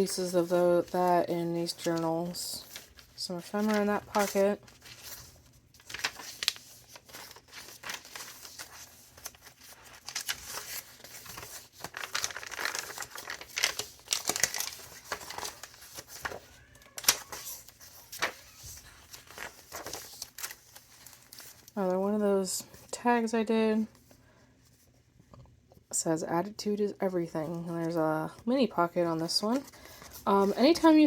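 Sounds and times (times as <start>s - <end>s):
paper rustling and crinkling: 0.2s - 21.8s, 29.1s - 31.0s.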